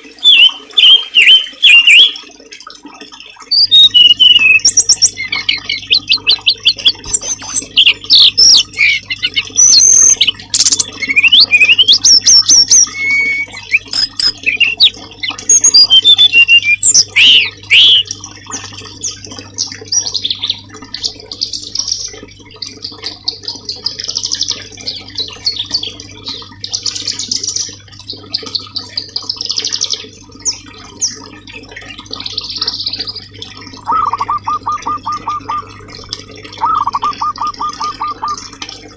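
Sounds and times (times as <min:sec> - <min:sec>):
songbirds singing: 0:00.2 - 0:02.2, 0:03.5 - 0:18.2, 0:24.3 - 0:38.6.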